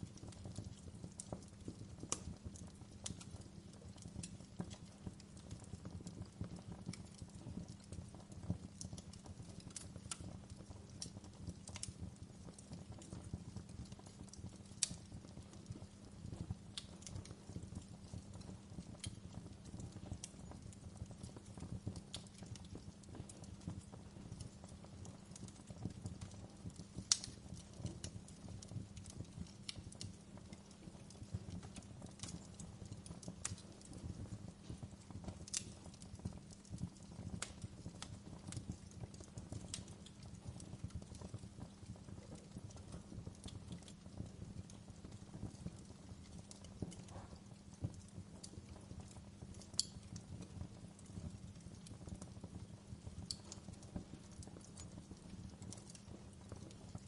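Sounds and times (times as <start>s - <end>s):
low rumble of burning: 0.0s - 57.0s
wood fire crackling and popping: 0.0s - 57.0s.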